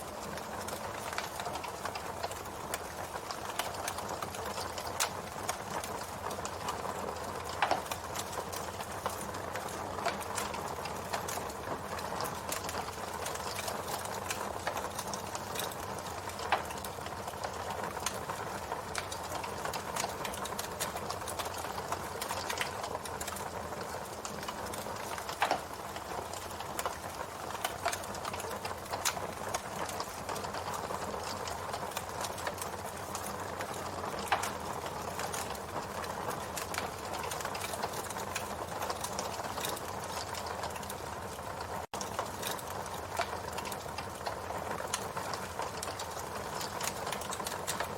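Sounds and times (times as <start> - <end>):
campfire crackling: 0.0 - 47.9
campfire pops: 24.2 - 35.6, 41.9 - 44.3.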